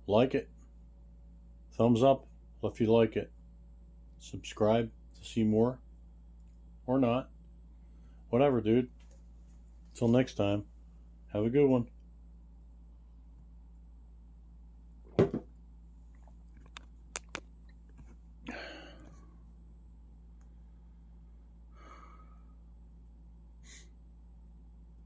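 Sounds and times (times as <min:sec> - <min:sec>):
low steady hum: 0:00.0 - 0:25.0
loud thump: 0:15.1 - 0:15.5
sharp clicks: 0:16.7 - 0:17.5.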